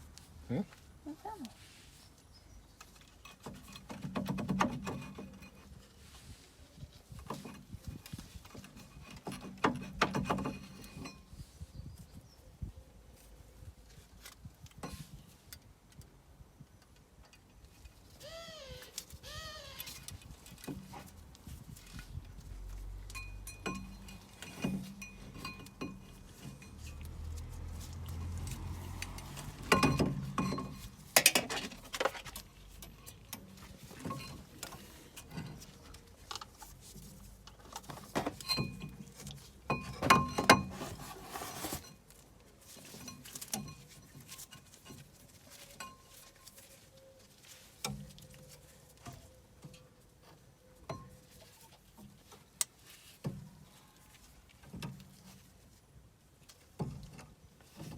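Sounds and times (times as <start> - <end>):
metal tools clinking: 23.1 - 27.4.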